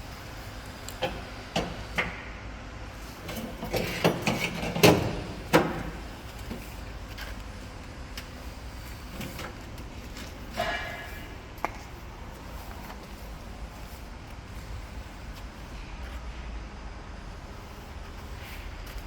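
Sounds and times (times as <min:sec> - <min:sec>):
knocks and clanks on metal: 0:03.3 - 0:06.7, 0:09.2 - 0:11.8.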